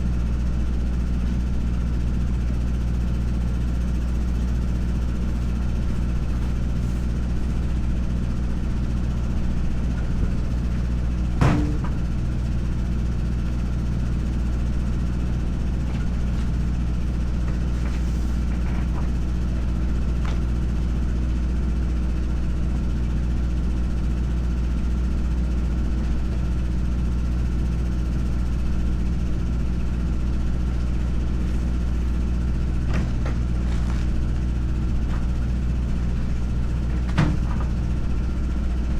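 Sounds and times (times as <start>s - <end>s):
heavy engine idling: 0.0s - 38.9s.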